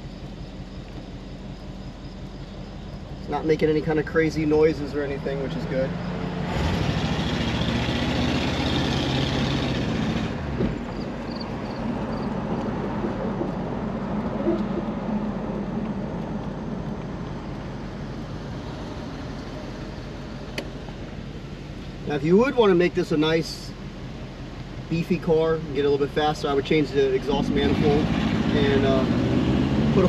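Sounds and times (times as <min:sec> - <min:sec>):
car engine running: 0:00.0 - 0:30.0
road noise: 0:00.0 - 0:30.0.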